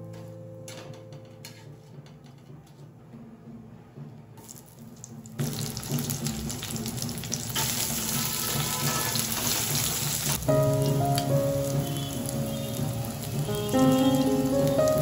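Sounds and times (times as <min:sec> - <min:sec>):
background music: 0:00.0 - 0:08.8, 0:09.8 - 0:15.0
onions sizzling in hot oil: 0:04.4 - 0:15.0.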